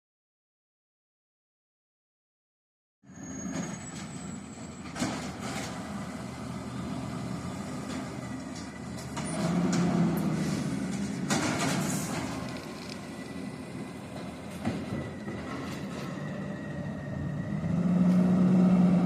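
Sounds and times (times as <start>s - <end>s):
garbage truck engine rumble: 3.1s - 19.0s.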